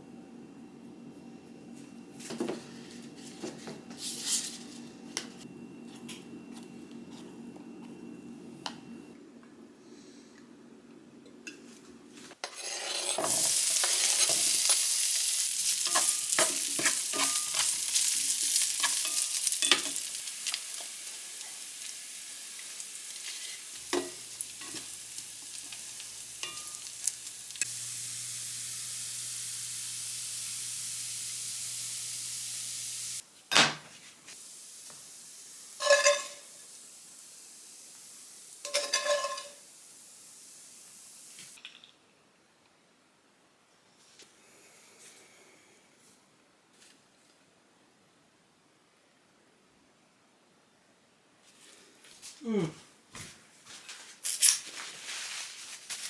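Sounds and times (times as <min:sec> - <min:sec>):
scraping in a pan: 0:12.4 - 0:21.1, 0:23.1 - 0:27.6, 0:35.8 - 0:36.5, 0:38.6 - 0:39.6
food sizzling in a pan: 0:12.9 - 0:33.2, 0:34.3 - 0:41.6.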